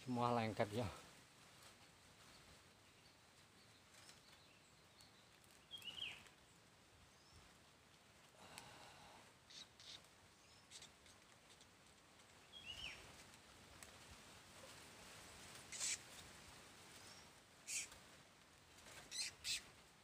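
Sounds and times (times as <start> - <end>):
small bird chirping: 2.2 - 7.5, 9.5 - 13.2, 15.7 - 16.1, 16.9 - 18.0, 18.9 - 19.7.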